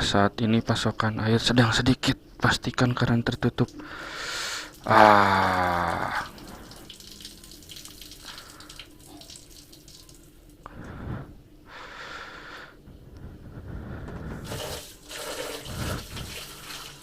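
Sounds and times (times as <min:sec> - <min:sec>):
water running from a tap: 0:04.5 - 0:10.6, 0:14.4 - 0:17.0.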